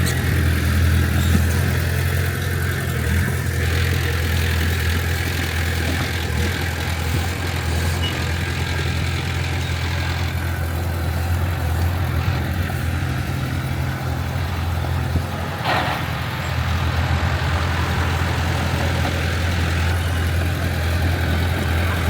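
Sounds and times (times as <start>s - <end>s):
heavy diesel engine droning: 0.0s - 22.0s.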